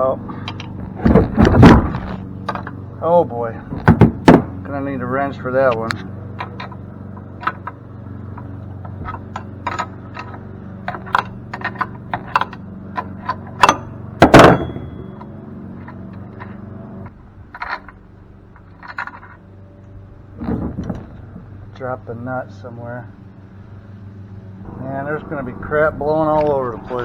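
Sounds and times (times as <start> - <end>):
steady low hum: 0.0 - 27.0
loud metal clank: 9.0 - 16.6.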